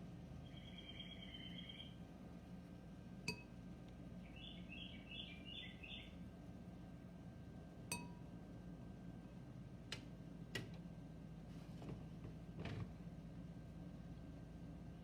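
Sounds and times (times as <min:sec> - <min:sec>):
faint birdsong: 0:00.3 - 0:02.0, 0:04.1 - 0:06.3.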